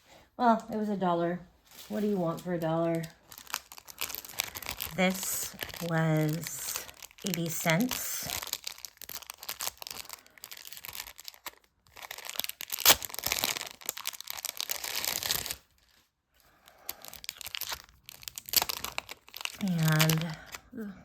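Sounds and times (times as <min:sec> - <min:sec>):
plastic packaging crinkling and tearing: 0:01.7 - 0:20.8
sharp crack: 0:12.7 - 0:13.6.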